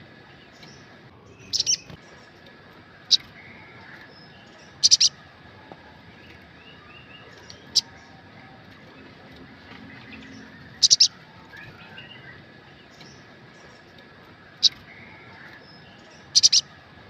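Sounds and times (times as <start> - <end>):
soft bird twittering: 0.0 - 17.0
sunbird sharp high chirps: 0.5 - 2.3, 3.1 - 5.2, 10.8 - 13.8, 14.6 - 16.7.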